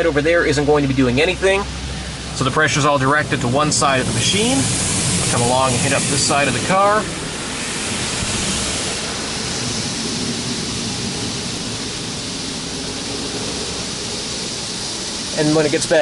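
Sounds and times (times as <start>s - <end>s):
car wash water jets hissing: 0.0s - 16.0s.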